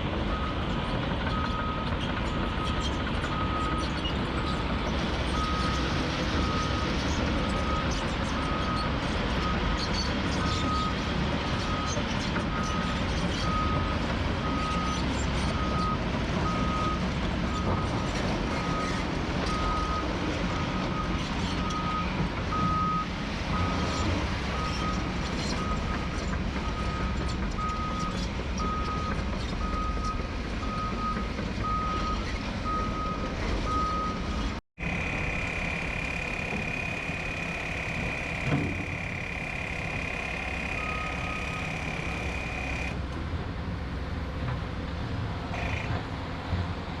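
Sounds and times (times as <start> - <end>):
diesel engines rumbling: 0.0 - 47.0
reversing alarm beeping: 1.3 - 4.7, 5.3 - 9.8, 10.4 - 11.0, 11.6 - 43.0.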